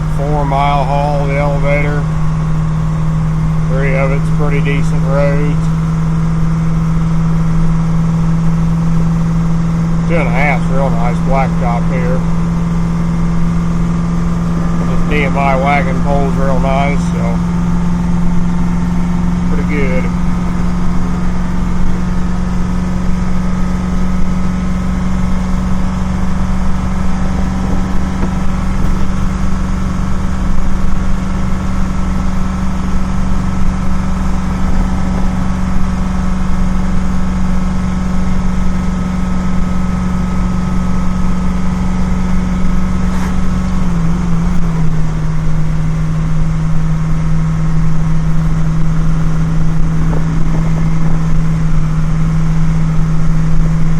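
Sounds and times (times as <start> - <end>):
road and tyre noise: 0.0 - 53.9
truck engine running under load: 0.0 - 53.9.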